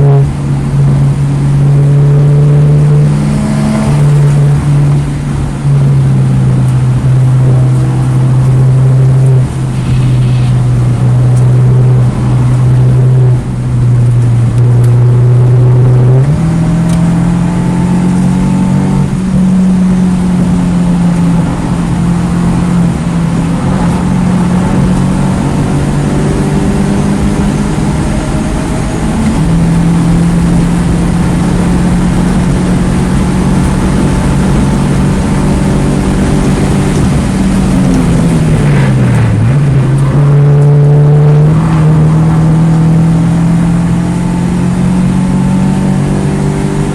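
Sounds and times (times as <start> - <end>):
car engine running hard: 0.0 - 46.9.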